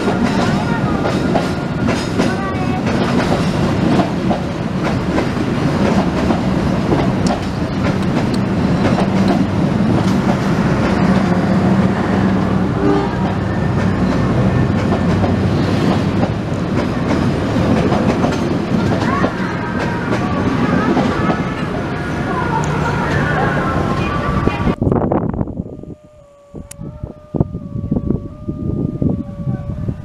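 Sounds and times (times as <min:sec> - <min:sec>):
train wheels clattering: 0:00.0 - 0:11.8, 0:13.1 - 0:21.9.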